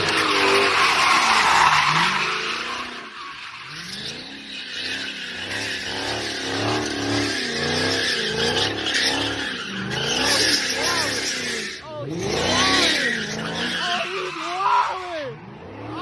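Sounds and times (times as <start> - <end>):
car tyres squealing: 0.0 - 16.0.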